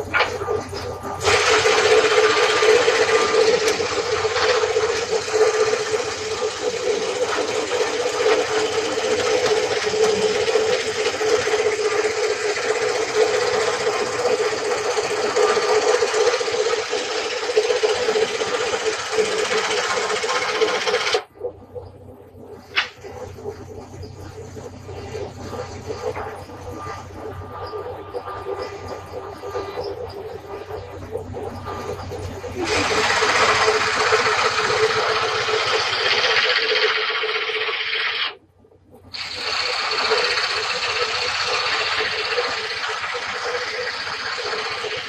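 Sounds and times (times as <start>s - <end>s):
table saw whirring: 0.0s - 21.3s, 31.8s - 38.4s, 39.2s - 45.0s.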